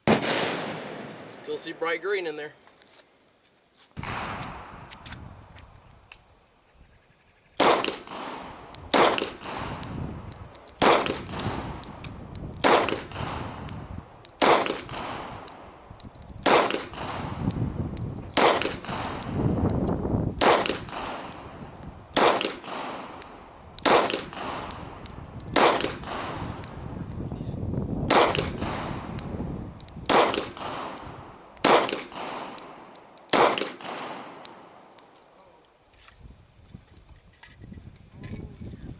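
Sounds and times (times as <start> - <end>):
pistol shots: 0.0 - 1.4, 7.6 - 9.9, 12.6 - 17.6, 18.3 - 19.4, 20.4 - 21.5, 22.2 - 26.4, 28.1 - 29.4, 30.0 - 35.0.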